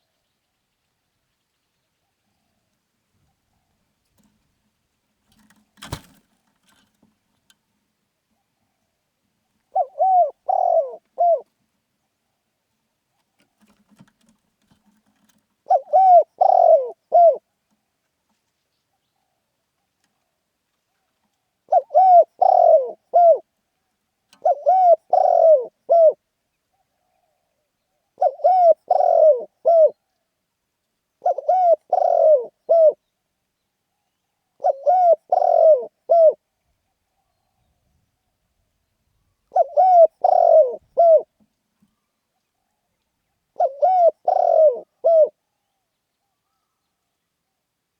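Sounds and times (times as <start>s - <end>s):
dove cooing: 9.6s - 11.5s, 15.2s - 17.5s, 21.7s - 23.5s, 24.3s - 30.0s, 31.2s - 33.1s, 34.6s - 36.4s, 39.4s - 41.4s, 43.5s - 45.4s.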